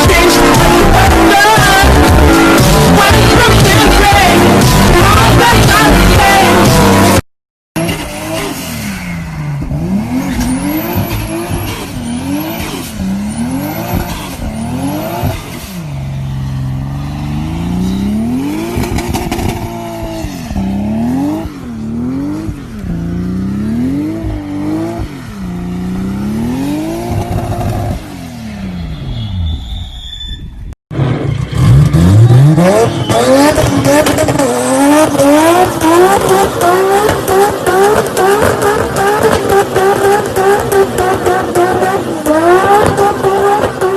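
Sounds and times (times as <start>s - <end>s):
car engine revving: 0.0s - 7.2s, 7.8s - 29.3s, 30.9s - 43.9s
thin high whistle: 28.8s - 30.6s.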